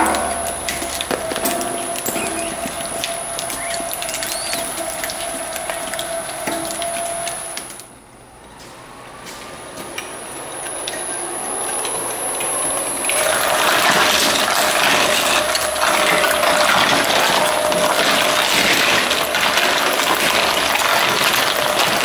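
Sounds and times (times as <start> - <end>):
electric shredder whining: 11.8 - 22.0
shredder grinding rubber toys: 13.0 - 22.0.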